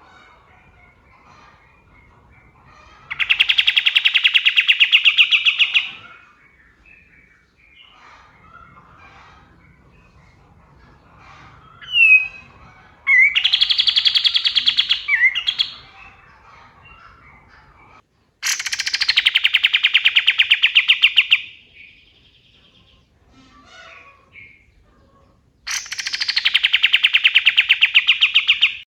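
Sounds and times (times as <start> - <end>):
songbird trilling: 3.1 - 6.2, 11.8 - 16.2, 18.4 - 22.9, 25.7 - 28.8.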